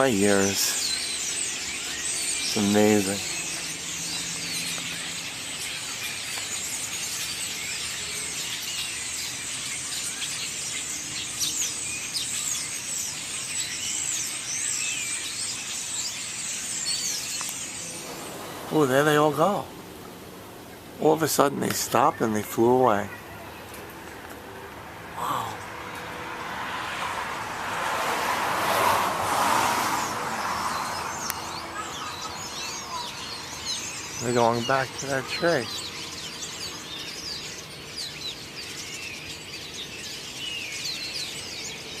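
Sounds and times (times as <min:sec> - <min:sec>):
flock of songbirds chirping: 0:00.0 - 0:42.0
car passing by: 0:17.0 - 0:20.6, 0:23.8 - 0:34.3
faint bird chirps: 0:30.0 - 0:42.0.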